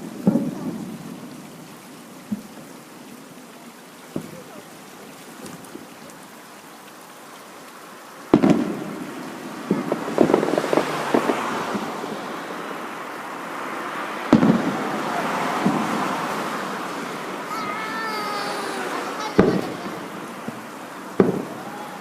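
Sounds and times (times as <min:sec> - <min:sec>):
firework bangs: 0:00.0 - 0:01.6, 0:04.1 - 0:04.7, 0:08.3 - 0:22.0
firework crackling pops: 0:00.0 - 0:02.7, 0:04.0 - 0:06.2, 0:08.2 - 0:12.9, 0:14.3 - 0:16.4, 0:17.2 - 0:22.0.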